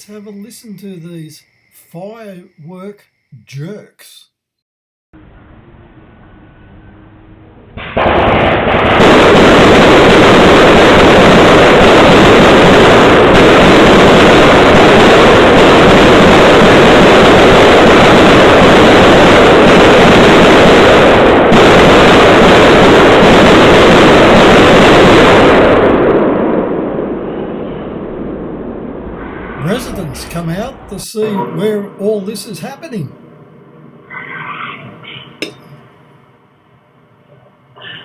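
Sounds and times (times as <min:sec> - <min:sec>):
firework cake barrage: 0:07.8 - 0:26.4, 0:29.2 - 0:33.2.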